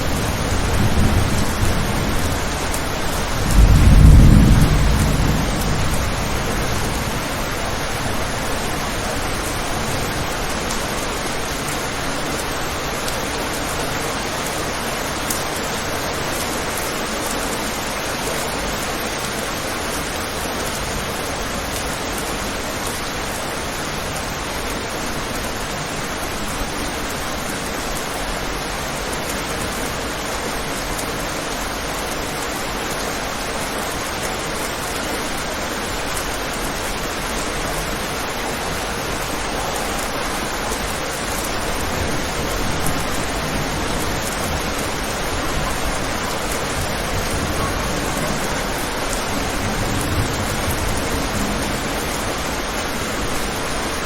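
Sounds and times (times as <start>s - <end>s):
low thunder rumble: 0.0s - 10.3s
steady rain: 0.0s - 54.0s.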